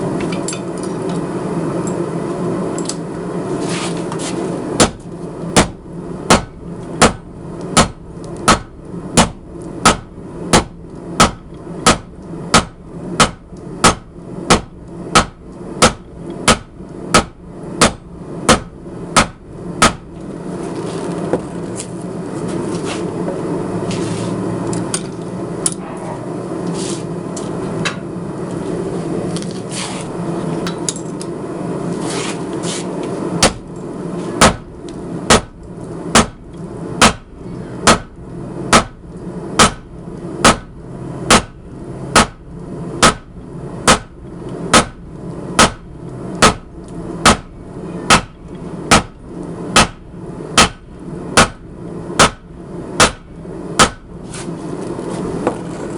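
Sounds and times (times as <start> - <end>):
hammer striking steel on anvil: 4.8 - 20.1, 33.4 - 33.7, 35.3 - 36.4, 37.0 - 39.0, 39.6 - 40.7, 41.3 - 42.4, 43.0 - 45.0, 45.6 - 47.5, 48.1 - 49.2, 49.8 - 50.0, 50.6 - 51.6, 52.2 - 54.1.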